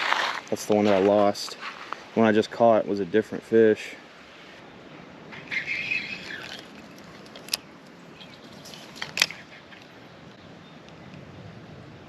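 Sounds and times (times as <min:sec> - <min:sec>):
steady outdoor hiss: 0:00.0 - 0:12.0
bird chirping: 0:05.3 - 0:11.2.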